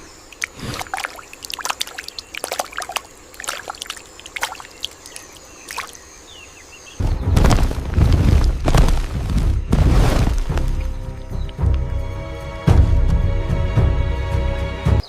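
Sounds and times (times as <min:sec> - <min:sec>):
trickling water drips: 0:00.0 - 0:06.1, 0:10.5 - 0:12.1.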